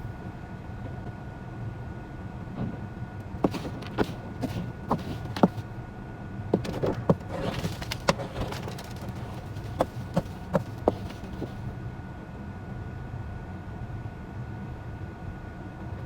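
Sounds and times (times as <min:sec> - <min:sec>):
sharp clicks and knocks: 0:03.5 - 0:05.6, 0:06.6 - 0:11.6.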